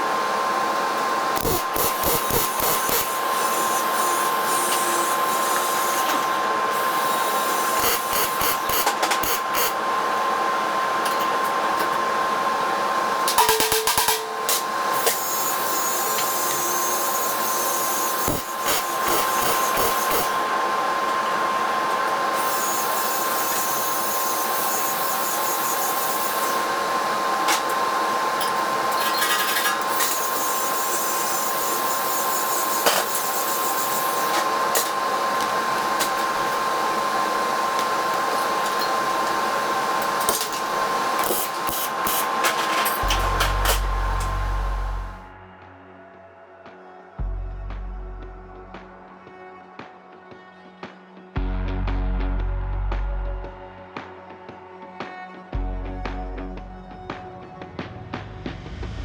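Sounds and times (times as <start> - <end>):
power tool whining: 0.0 - 45.3.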